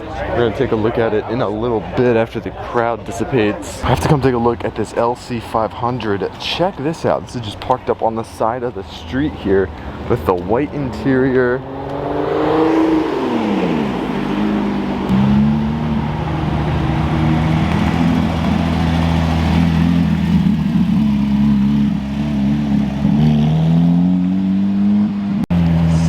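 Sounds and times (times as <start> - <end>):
car engine running: 8.6 - 24.4.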